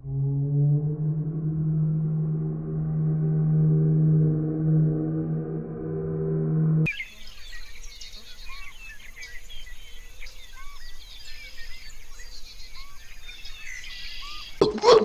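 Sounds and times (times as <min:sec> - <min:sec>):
small birds chirping: 0:06.9 - 0:15.0.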